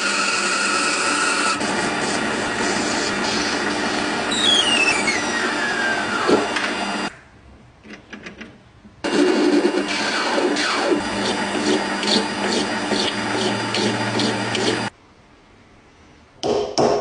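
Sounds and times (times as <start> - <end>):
workshop machine whine: 0.0 - 7.1, 9.0 - 14.9.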